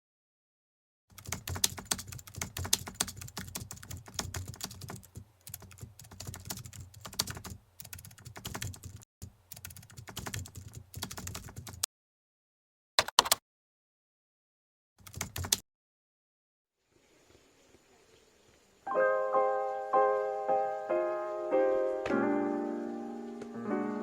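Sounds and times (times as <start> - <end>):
rapid irregular clicking: 1.1 - 11.9.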